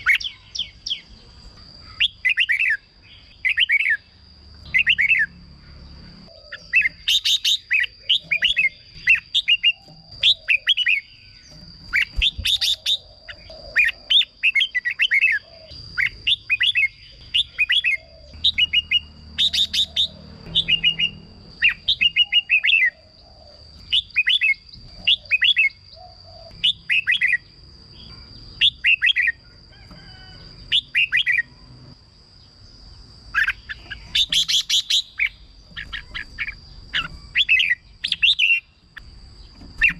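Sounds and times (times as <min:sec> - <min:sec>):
birds singing warbled phrases: 0:00.0 - 0:39.9
high-pitched whine: 0:15.8 - 0:25.8.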